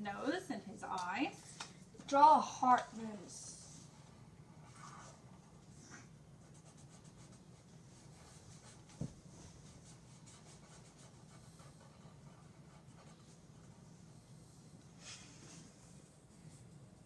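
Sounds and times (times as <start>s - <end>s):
drawing tool scratching on paper: 3.8s - 14.8s.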